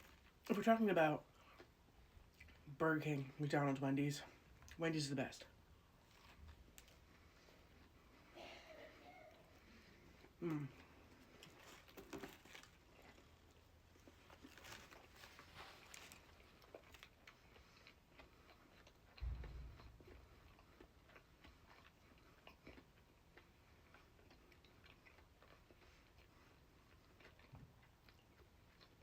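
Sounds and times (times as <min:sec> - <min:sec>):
person chewing: 0:01.2 - 0:02.8, 0:05.8 - 0:29.0
small crunches: 0:10.4 - 0:26.3
low thump: 0:19.2 - 0:19.9.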